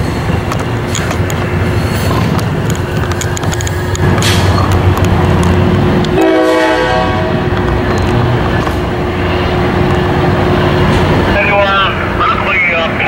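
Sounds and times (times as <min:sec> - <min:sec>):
train diesel rumble: 0:00.0 - 0:13.0
train horn blast: 0:06.1 - 0:07.6.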